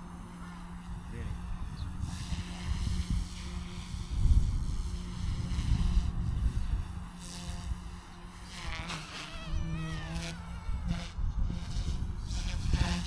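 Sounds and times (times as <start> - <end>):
rc helicopter humming: 0.0 - 13.0
wind buffeting microphone: 0.6 - 13.0.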